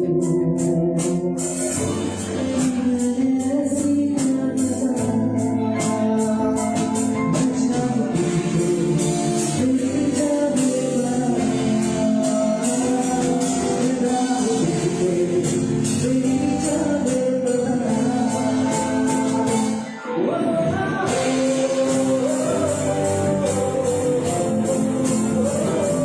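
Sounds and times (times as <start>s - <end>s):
live band playing: 0.0s - 26.0s
person singing: 0.0s - 26.0s
steady percussion beat: 21.0s - 26.0s.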